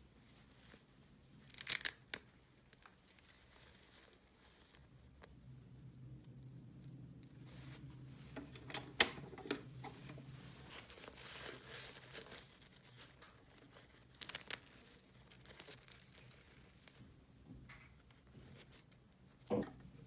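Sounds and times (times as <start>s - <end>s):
packaging rustling and tearing: 10.5s - 17.0s.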